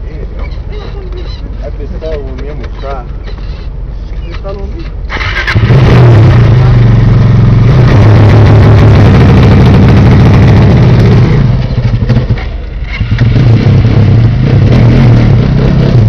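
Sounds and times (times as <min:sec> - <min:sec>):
dirt bike engine revving: 0:05.1 - 0:16.0.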